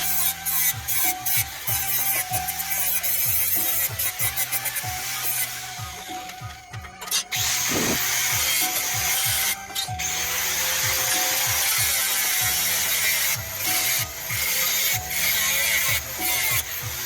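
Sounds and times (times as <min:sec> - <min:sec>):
grass chopper shredding grass: 0:07.4 - 0:17.0.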